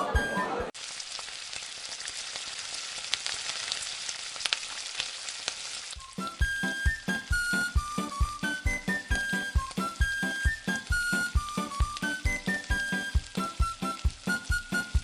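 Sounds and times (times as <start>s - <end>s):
music: 0.0s - 0.7s, 6.0s - 15.0s
food sizzling in a pan: 0.8s - 15.0s.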